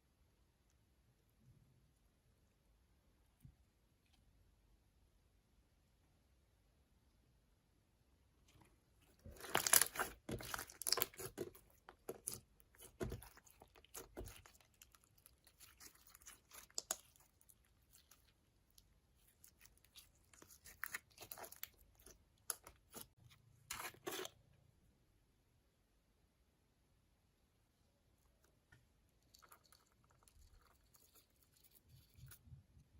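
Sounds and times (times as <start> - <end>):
slime crackling and crunching: 9.2 - 24.3.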